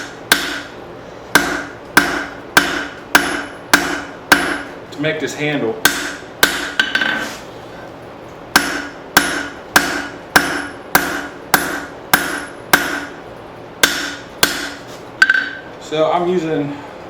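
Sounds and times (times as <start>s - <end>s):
hammer striking steel on anvil: 0.0s - 4.7s, 5.8s - 7.2s, 8.5s - 13.2s, 13.8s - 15.7s.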